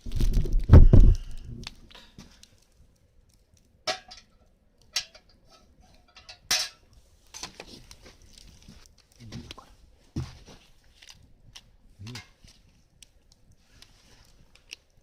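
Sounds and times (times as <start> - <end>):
soft rustling: 12.4 - 14.9.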